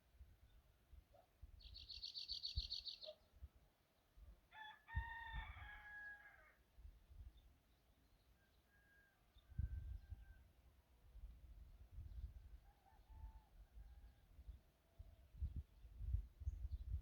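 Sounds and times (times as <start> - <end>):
distant rooster crowing: 4.5 - 6.6, 8.4 - 10.4, 12.6 - 14.3.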